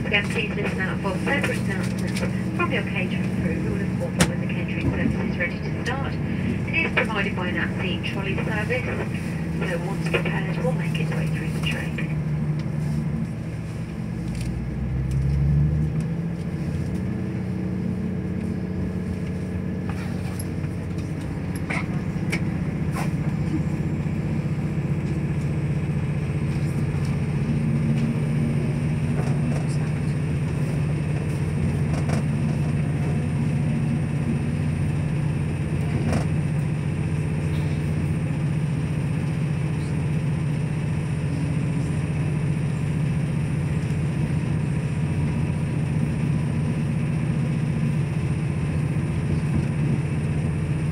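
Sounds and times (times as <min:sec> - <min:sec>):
train engine drone inside carriage: 0:00.0 - 0:50.9.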